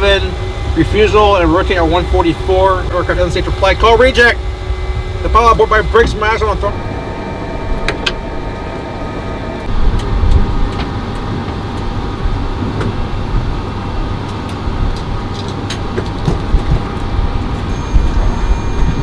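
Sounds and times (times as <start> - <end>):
faint steady tone: 0.0 - 9.7
aircraft cabin rumble: 0.0 - 19.0.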